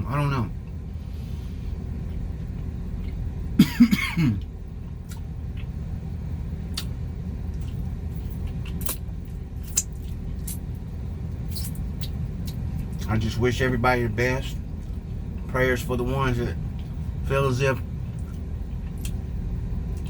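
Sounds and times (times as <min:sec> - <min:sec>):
vehicle rumble inside cab: 0:00.0 - 0:20.0
man coughing: 0:03.6 - 0:04.4.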